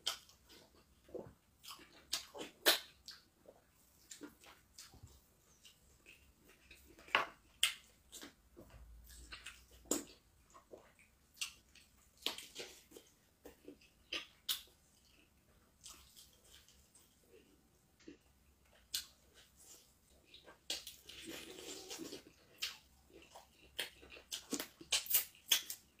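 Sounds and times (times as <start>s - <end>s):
wet chewing and lip-smacking: 0.0s - 26.0s.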